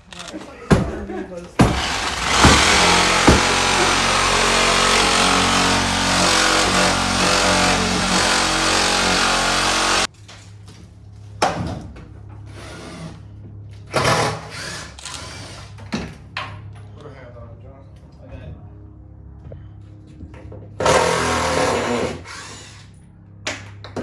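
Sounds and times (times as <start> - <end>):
power tool running: 1.6 - 10.1.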